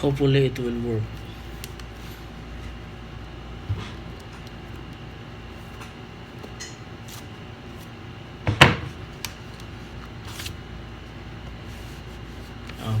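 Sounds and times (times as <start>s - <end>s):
background hum: 0.0s - 13.0s
knock on workbench: 8.5s - 8.9s.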